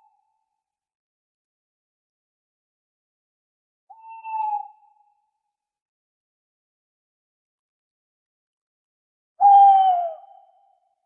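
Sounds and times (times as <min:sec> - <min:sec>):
owl hooting: 0:03.9 - 0:04.8, 0:09.4 - 0:10.3.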